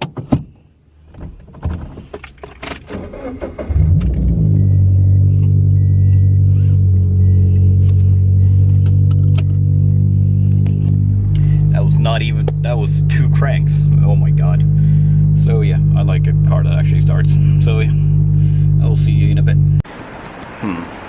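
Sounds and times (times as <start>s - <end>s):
car engine starting and idling: 0.4s - 20.8s
faint beeping: 4.5s - 19.8s.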